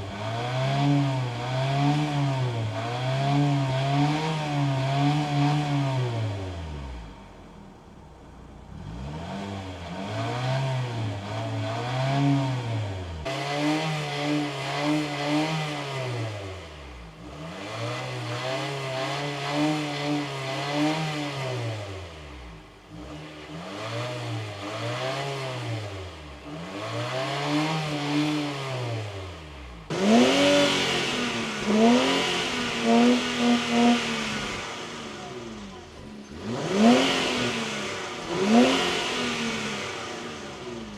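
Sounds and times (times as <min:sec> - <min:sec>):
car engine revving: 0:00.0 - 0:08.0, 0:08.7 - 0:40.9
louder car engine sharp blips: 0:29.9 - 0:40.9.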